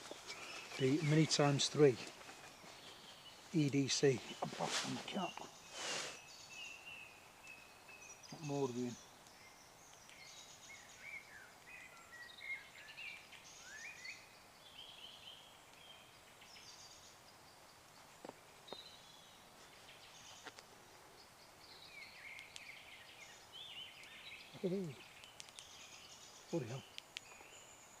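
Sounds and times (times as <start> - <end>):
small birds singing and calling: 0.0 - 28.0
faint clicks: 9.2 - 10.2, 24.0 - 25.9.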